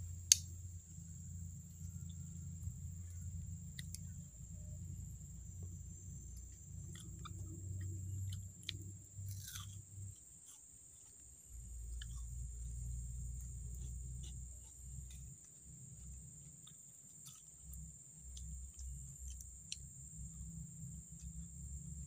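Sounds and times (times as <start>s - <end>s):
person chewing crunchy food: 6.1s - 19.9s.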